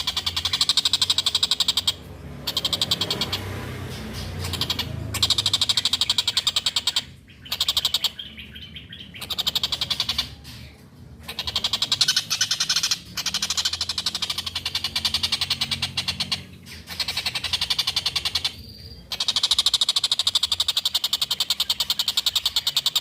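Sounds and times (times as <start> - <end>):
kingfisher rattling call: 0.0 - 23.0.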